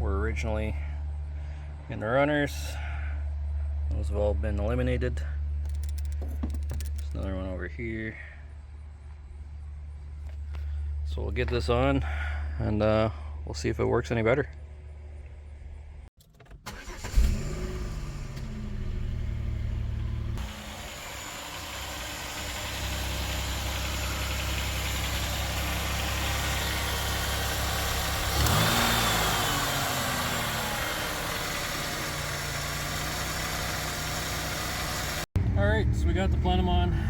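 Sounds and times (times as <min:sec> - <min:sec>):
car engine cranking and idling: 0:03.4 - 0:08.3, 0:15.2 - 0:37.0.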